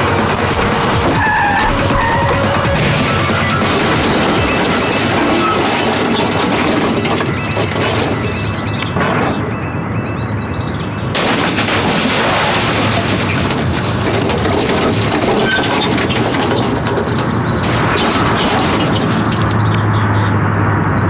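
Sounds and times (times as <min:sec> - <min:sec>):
metal crunching and scraping: 0:00.0 - 0:09.6, 0:11.2 - 0:20.4
vehicle crash: 0:00.0 - 0:10.4, 0:11.0 - 0:20.3
hissing burst: 0:17.6 - 0:19.0.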